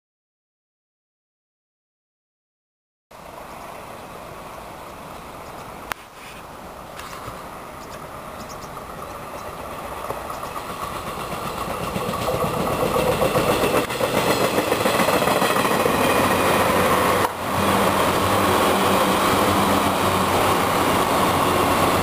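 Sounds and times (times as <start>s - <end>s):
train wheels rumbling on rails: 6.9s - 22.0s.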